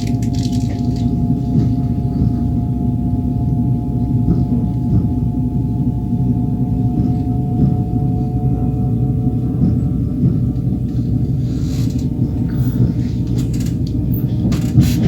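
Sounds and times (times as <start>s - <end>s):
sustained ringing tone: 0.0s - 11.4s
train wheels rumbling on rail: 0.0s - 15.0s.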